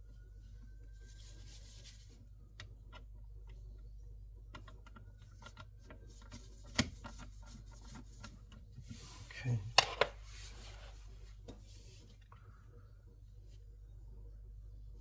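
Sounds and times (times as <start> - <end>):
hands working wires rustling: 5.4 - 12.2.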